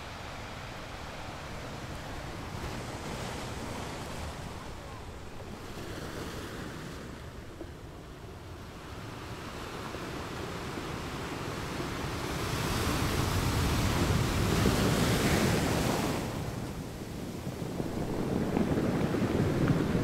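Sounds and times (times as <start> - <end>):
sea waves: 0.0 - 20.0
wind on microphone: 12.4 - 20.0.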